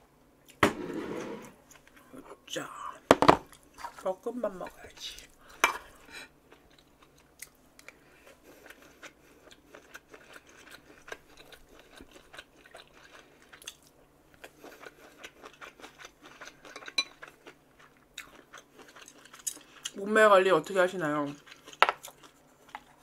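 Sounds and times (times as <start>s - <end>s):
person chewing close up: 5.0s - 20.0s, 21.3s - 23.0s.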